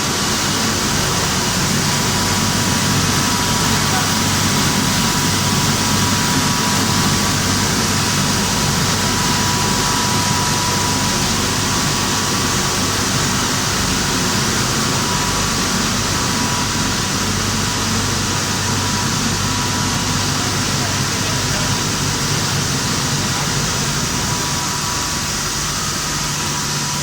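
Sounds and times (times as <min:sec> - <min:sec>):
milling machinery running: 0:00.0 - 0:27.0.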